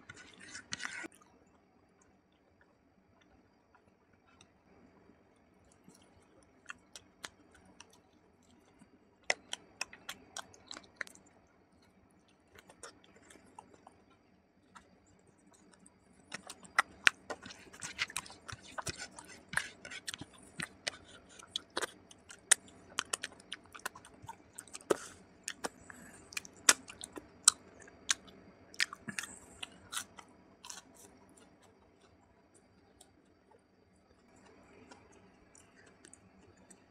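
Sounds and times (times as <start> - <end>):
wet chewing and lip smacks: 5.7 - 33.6.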